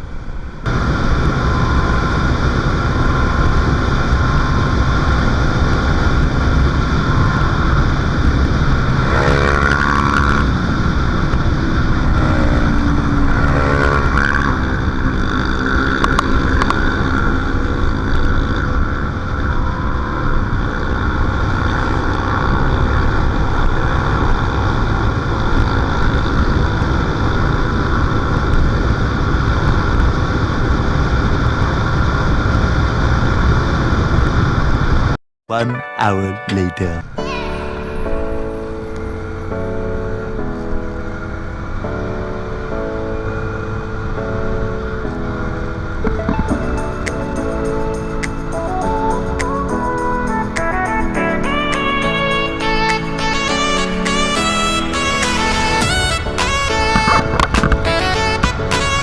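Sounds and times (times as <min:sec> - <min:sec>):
wind rushing over microphone: 0:00.0 - 0:35.2, 0:37.0 - 0:59.0
motorcycle engine running: 0:00.6 - 0:34.2, 0:45.8 - 0:59.0.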